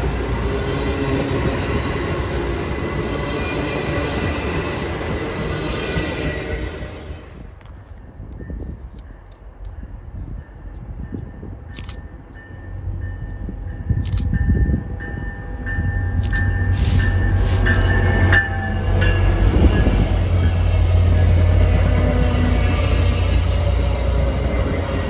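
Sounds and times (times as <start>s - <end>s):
high ringing tone: 12.0s - 20.1s.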